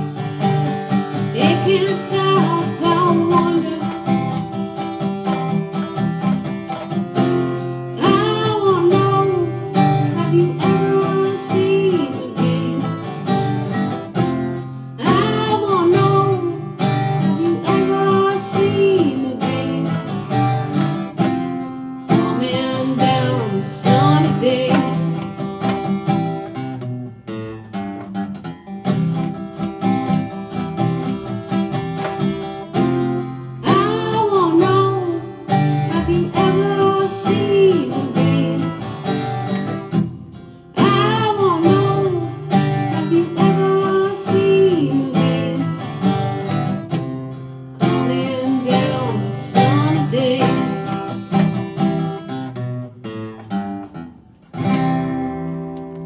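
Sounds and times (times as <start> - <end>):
acoustic guitar strumming chords: 0.0 - 56.0.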